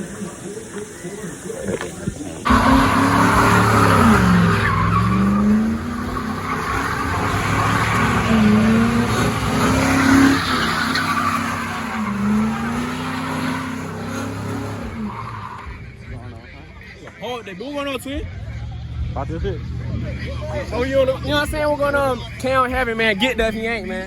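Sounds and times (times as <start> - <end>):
tires squealing: 0.0 - 16.2
car engine revving: 1.7 - 16.6, 18.1 - 22.9.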